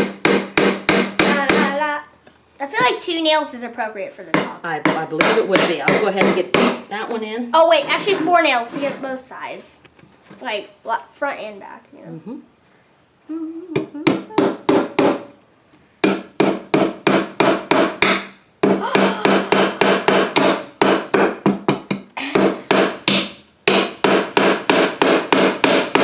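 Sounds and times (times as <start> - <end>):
hammer driving nails: 0.0 - 1.8, 4.4 - 6.8, 14.1 - 15.3, 16.0 - 26.0.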